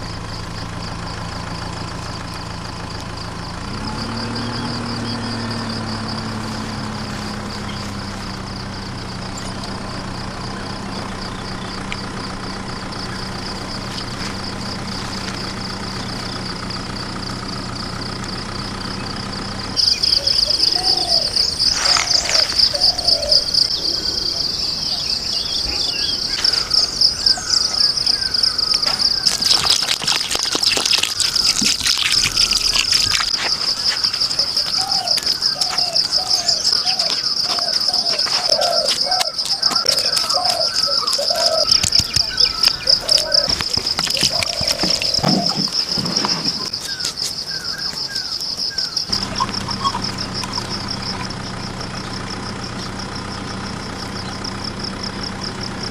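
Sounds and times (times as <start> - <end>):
insect trill: 0.0 - 55.9
bird calling: 1.6 - 55.6
sharp clicks: 38.9 - 46.0.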